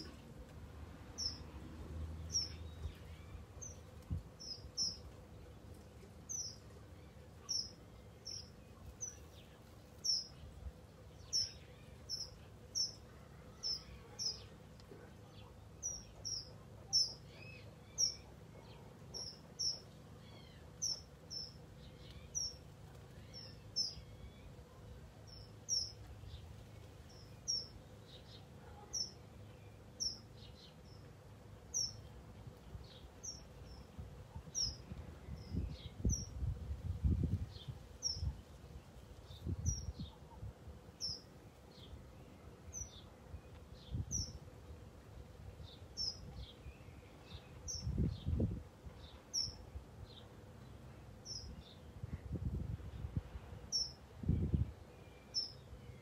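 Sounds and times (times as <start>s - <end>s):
bird chirping: 1.2s - 1.6s, 2.2s - 5.5s, 6.2s - 32.2s, 53.7s - 56.0s.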